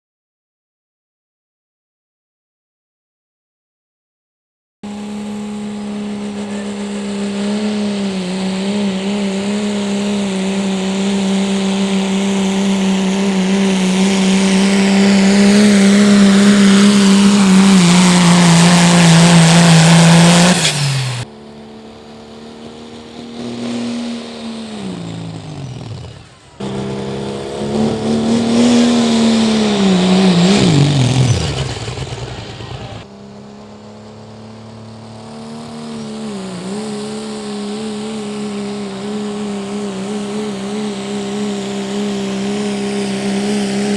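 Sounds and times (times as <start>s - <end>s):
diesel engine at high revs: 4.8s - 43.9s
engine winding down: 4.8s - 43.9s.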